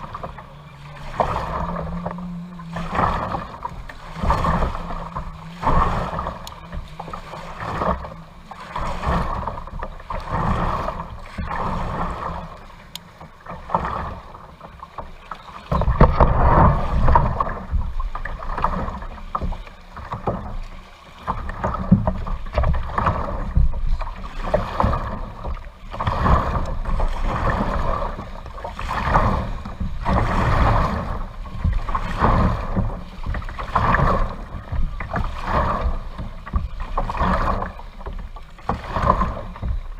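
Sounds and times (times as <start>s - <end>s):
low rumble: 0.0s - 12.8s
kayak paddle splashing water: 0.0s - 39.9s.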